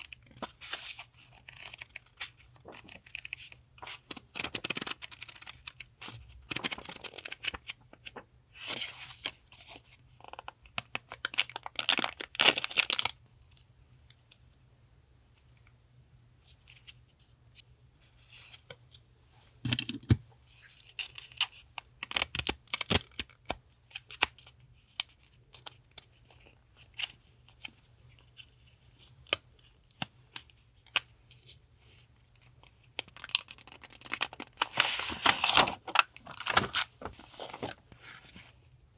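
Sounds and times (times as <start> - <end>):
packaging rustling and tearing: 33.3 - 38.4.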